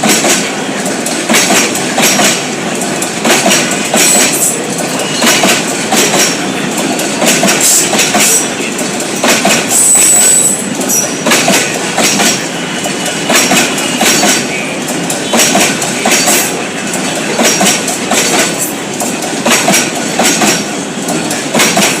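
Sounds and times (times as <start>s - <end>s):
train wheels clacking over rail joints: 0.0s - 22.0s
high wheel squeal: 9.7s - 11.2s.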